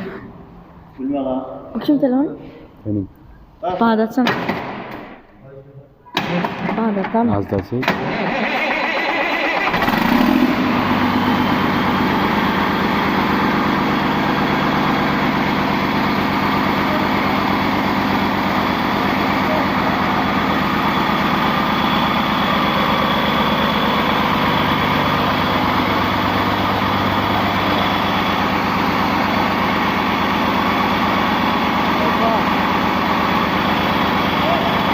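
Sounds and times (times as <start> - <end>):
diesel engine starting and idling: 7.8 - 34.9.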